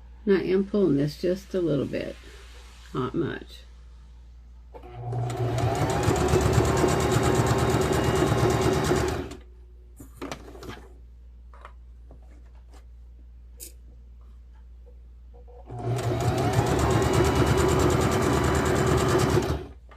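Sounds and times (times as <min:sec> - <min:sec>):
sewing machine stitching: 0:04.8 - 0:09.4, 0:15.7 - 0:19.8.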